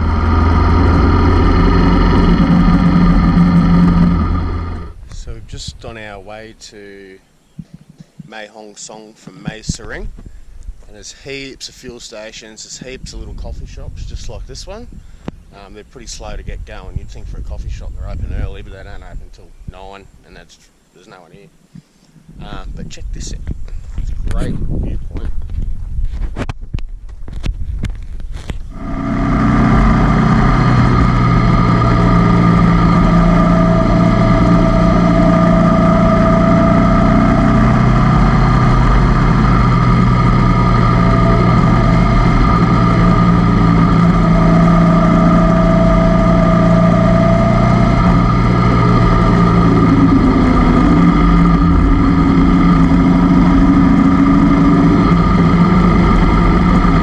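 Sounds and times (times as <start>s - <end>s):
motorcycle engine running: 0.0s - 5.2s, 28.7s - 57.0s.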